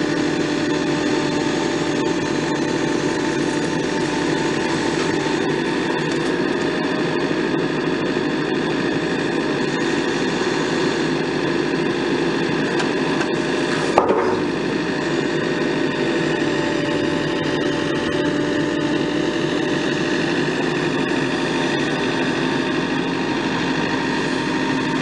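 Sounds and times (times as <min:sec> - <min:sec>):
excavator diesel engine running: 0:00.0 - 0:25.0
sharp knock: 0:13.9 - 0:14.6.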